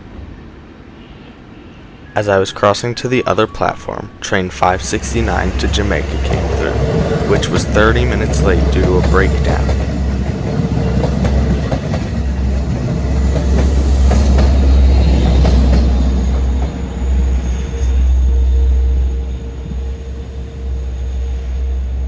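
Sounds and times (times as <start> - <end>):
train rumble: 0.0 - 22.0
wheels clicking over rails: 4.6 - 17.3.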